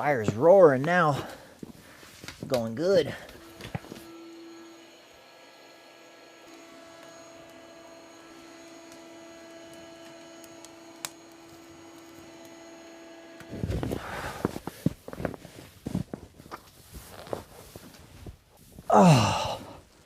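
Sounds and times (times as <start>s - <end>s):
wood stove humming: 0.0s - 20.0s
rustling: 13.5s - 18.9s.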